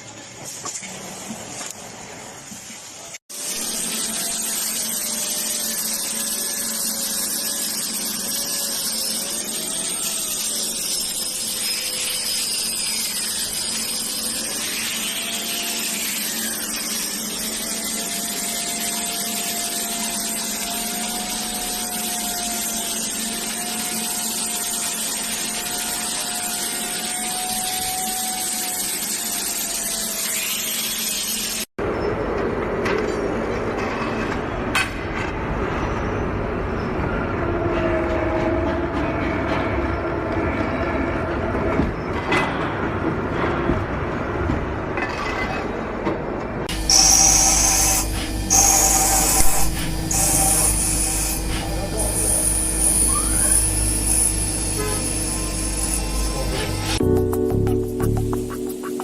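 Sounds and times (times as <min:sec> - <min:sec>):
machine hissing with faint whine: 0:46.7 - 0:57.0.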